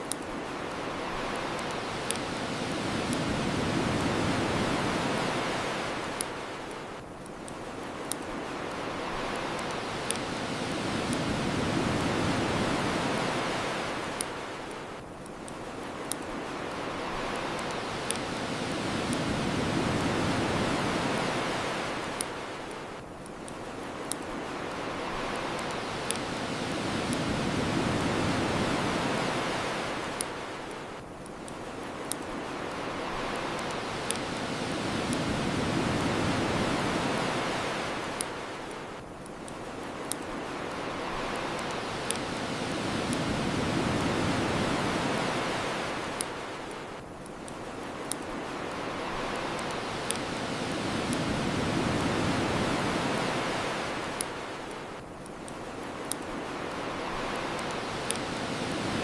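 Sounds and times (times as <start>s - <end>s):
bonfire crackling pops: 0.0s - 59.0s
ocean waves washing ashore: 0.0s - 59.0s.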